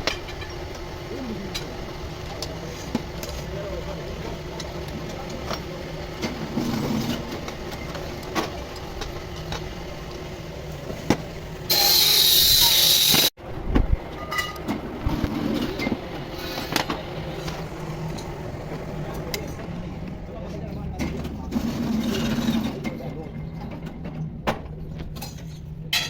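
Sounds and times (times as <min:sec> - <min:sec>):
workshop background noise: 0:00.0 - 0:26.0.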